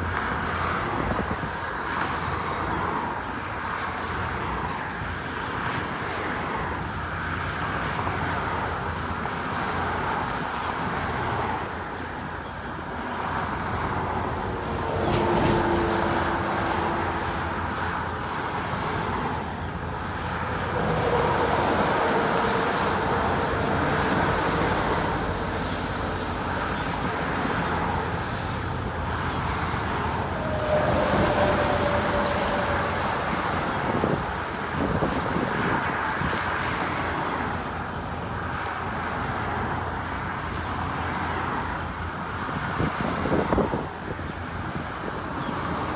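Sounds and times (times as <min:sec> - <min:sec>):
cars driving past: 0:13.2 - 0:37.6.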